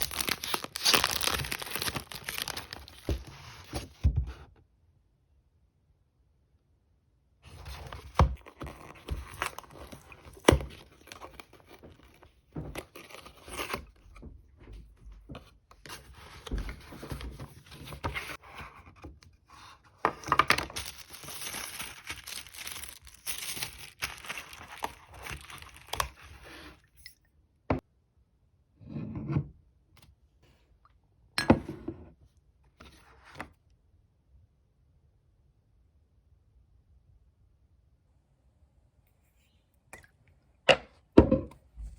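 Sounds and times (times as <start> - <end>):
packaging tearing and crinkling: 0.0 - 3.3, 20.4 - 26.5.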